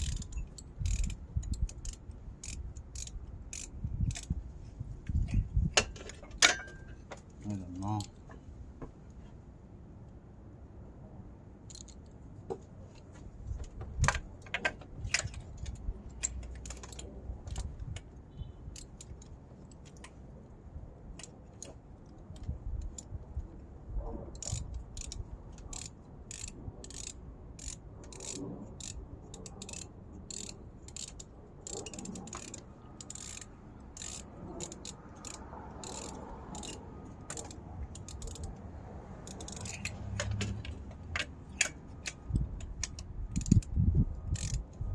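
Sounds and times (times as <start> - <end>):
ratchet wrench clicking: 0.0 - 4.4, 11.7 - 12.2, 14.0 - 18.1, 18.7 - 20.2, 21.1 - 23.2, 24.3 - 44.9.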